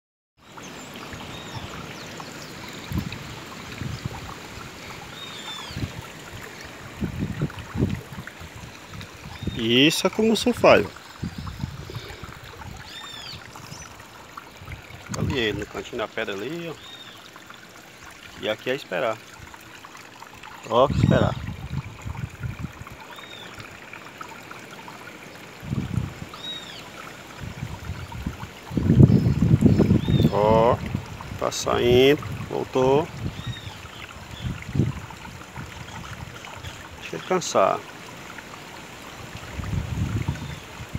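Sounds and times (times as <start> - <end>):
water rushing: 0.4 - 40.9
wind thumps on microphone: 6.9 - 9.6, 11.2 - 12.8, 20.9 - 22.9, 25.6 - 26.2, 27.4 - 31.4, 39.5 - 40.9.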